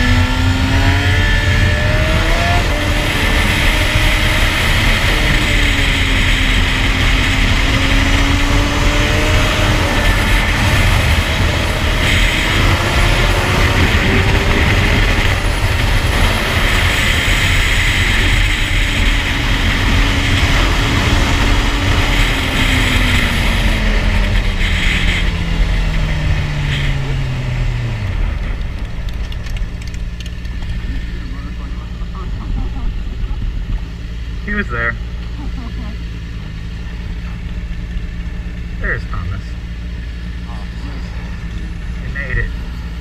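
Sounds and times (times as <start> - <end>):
wind rush on microphone: 0.0 - 34.4
motorcycle engine running: 0.0 - 43.0.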